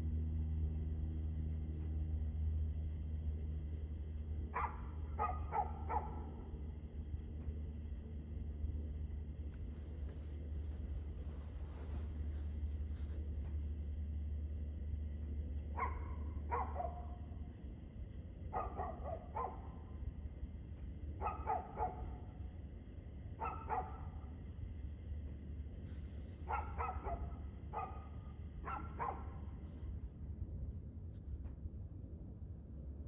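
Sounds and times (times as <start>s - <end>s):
steady low hum: 0.0s - 33.0s
dog barking: 4.5s - 6.6s, 15.7s - 17.4s, 18.5s - 20.0s, 21.2s - 22.4s, 23.4s - 24.3s, 26.4s - 29.7s.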